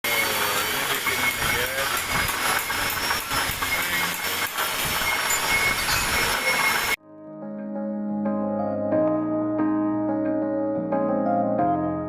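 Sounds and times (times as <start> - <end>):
milling machine cutting metal: 0.0 - 7.0.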